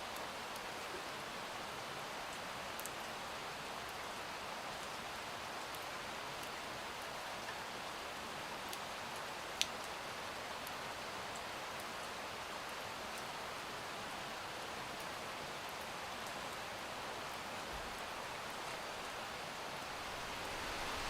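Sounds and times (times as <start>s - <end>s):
steady rain falling: 0.0s - 21.0s
rain drop ticks: 9.6s - 9.8s.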